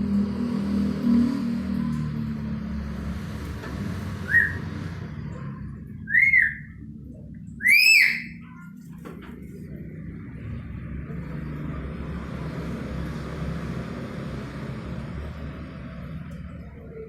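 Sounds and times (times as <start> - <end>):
parrot whistled calls: 4.3 - 4.7, 6.0 - 6.8, 7.6 - 8.4.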